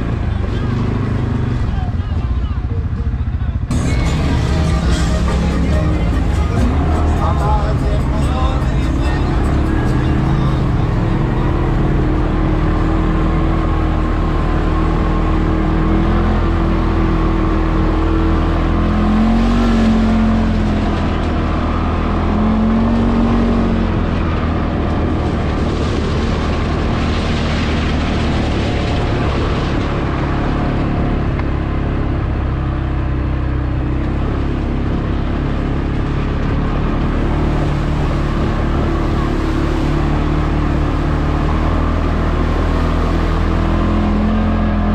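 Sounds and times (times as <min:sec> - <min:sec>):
rushing noise: 0:00.0 - 0:31.2
atv engine running: 0:00.0 - 0:44.9.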